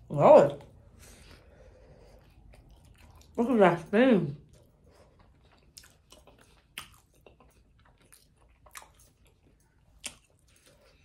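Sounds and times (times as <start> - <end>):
faint chewing: 0.5 - 11.0.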